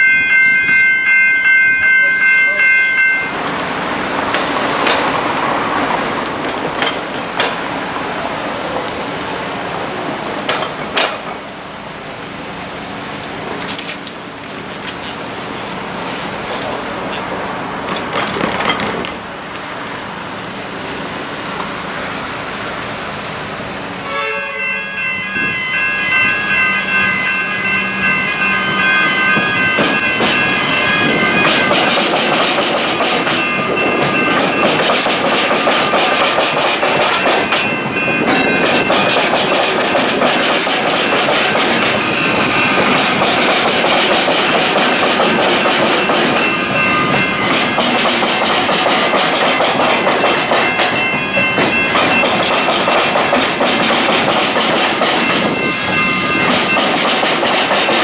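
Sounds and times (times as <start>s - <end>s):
wheels clattering over rails: 3.4s - 9.0s, 9.6s - 11.6s, 16.4s - 19.7s, 29.4s - 58.0s.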